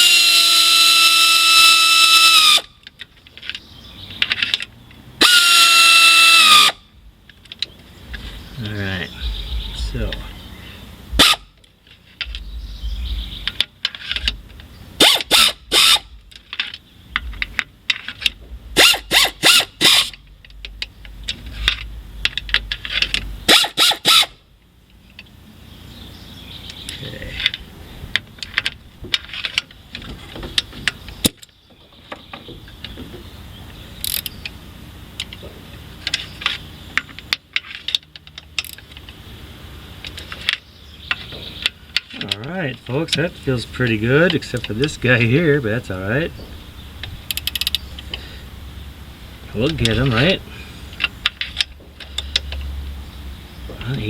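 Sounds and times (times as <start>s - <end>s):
pneumatic air ratchet: 0.0s - 2.8s, 4.2s - 6.8s, 11.2s - 11.6s, 15.0s - 20.2s, 20.8s - 24.4s, 34.0s - 34.5s, 36.0s - 39.0s, 47.0s - 48.4s, 50.6s - 52.8s
hand ratchet clicking: 15.0s - 24.4s, 34.0s - 34.4s, 37.0s - 38.8s, 47.0s - 48.2s.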